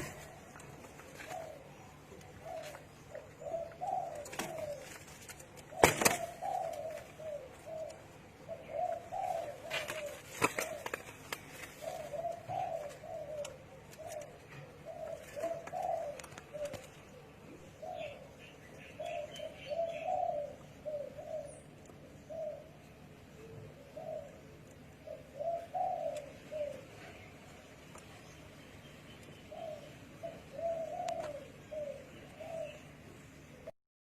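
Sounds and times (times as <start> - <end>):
doves cooing: 0.0 - 33.7.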